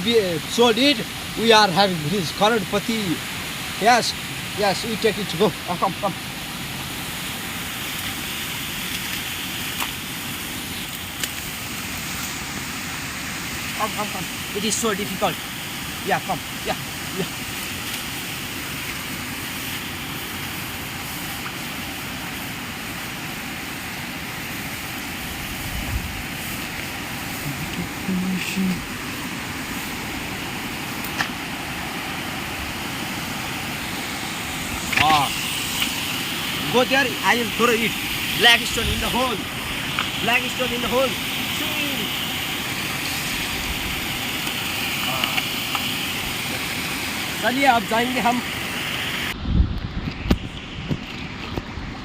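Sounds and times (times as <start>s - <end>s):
running water: 0.0s - 49.4s
steady rushing noise: 0.0s - 52.0s.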